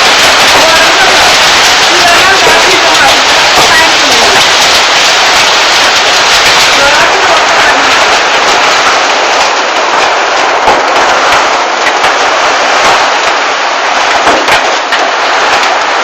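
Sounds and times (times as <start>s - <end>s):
heavy rain pouring: 0.0s - 16.0s
sharp raindrop hits: 0.0s - 16.0s.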